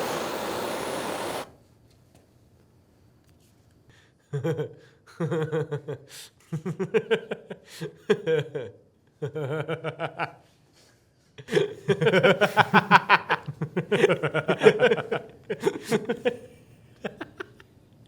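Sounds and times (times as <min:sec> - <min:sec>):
people laughing: 0:04.3 - 0:10.4, 0:11.5 - 0:17.6.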